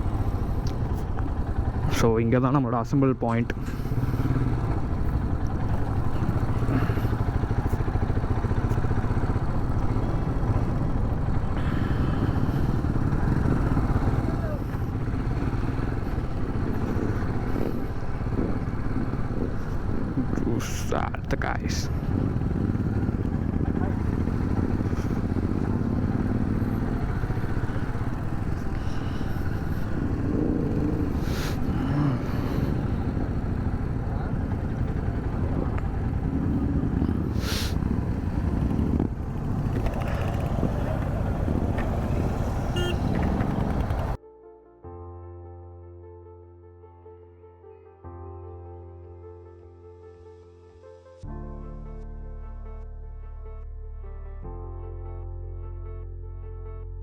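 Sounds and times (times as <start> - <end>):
motorcycle engine running: 0.0 - 44.2.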